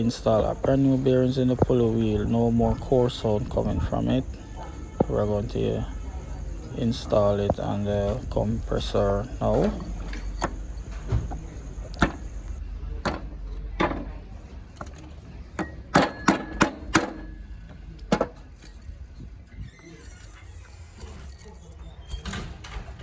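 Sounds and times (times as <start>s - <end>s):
hand tools knocking and clinking: 9.4s - 12.3s, 13.0s - 18.9s.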